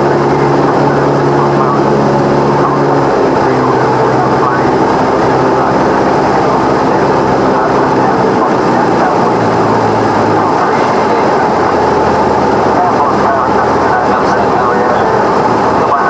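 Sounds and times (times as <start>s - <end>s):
airplane engine and propeller drone: 0.0s - 16.0s.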